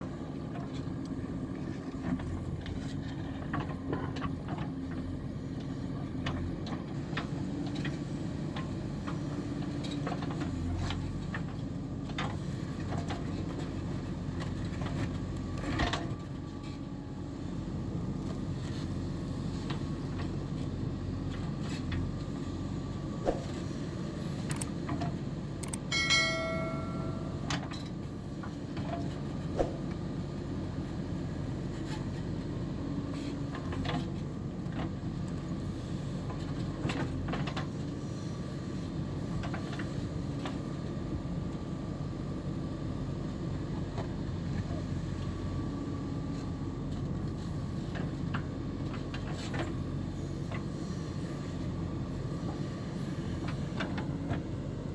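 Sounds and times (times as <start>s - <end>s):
ringing metallic clang: 25.9s - 27.5s.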